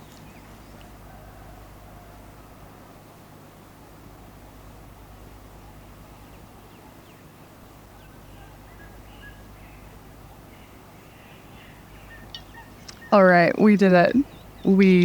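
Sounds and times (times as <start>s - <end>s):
low outdoor rumble: 0.0s - 15.0s
faint bird chirps and whistles: 8.0s - 13.2s.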